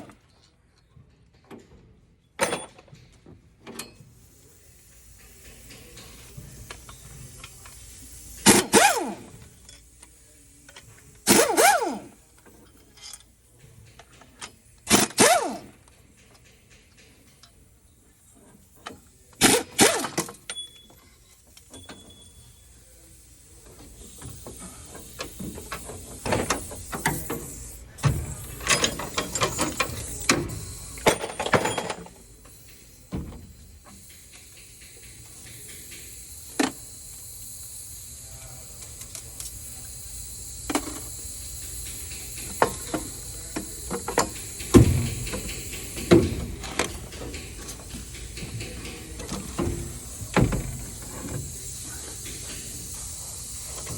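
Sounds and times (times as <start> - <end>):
ratcheting clicks: 28.4 - 53.9.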